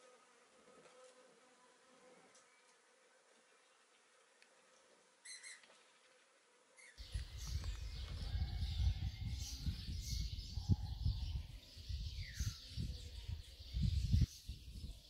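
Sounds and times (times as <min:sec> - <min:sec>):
birds chirping and calling: 0:05.3 - 0:05.7, 0:06.8 - 0:15.0
wind rumble on microphone: 0:07.0 - 0:15.0.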